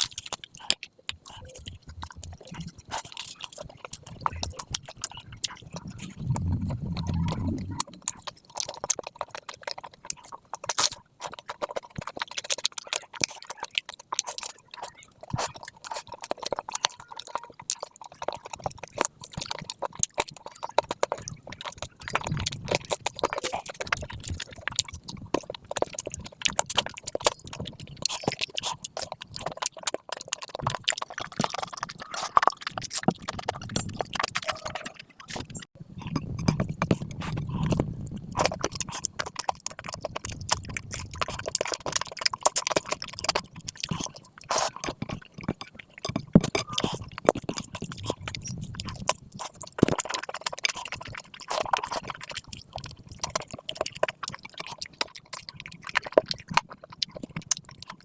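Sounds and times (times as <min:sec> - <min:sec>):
sharp mouth clicks: 0:00.0 - 0:09.4
wet chewing and lip smacks: 0:00.0 - 0:58.0.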